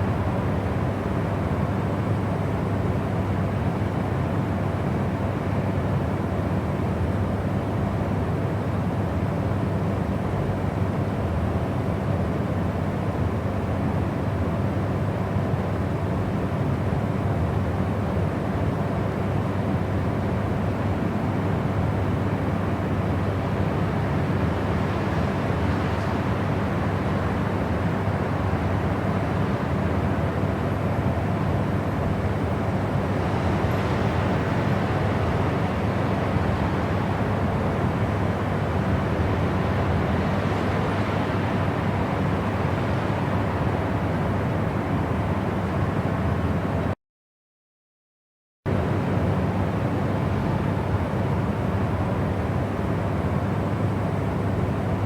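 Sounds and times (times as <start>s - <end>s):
white noise hiss: 20.5s - 46.0s.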